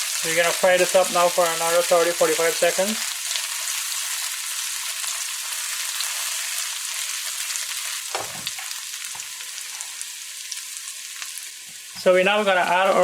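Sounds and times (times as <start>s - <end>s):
vegetables sizzling in hot oil: 0.0s - 13.0s
short knock: 8.1s - 8.6s.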